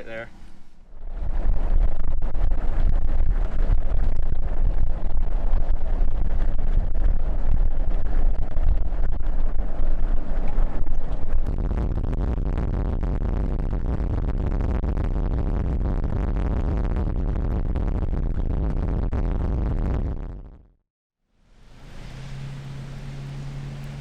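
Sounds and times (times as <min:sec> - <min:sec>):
storm wind buffeting microphone: 0:00.0 - 0:19.1.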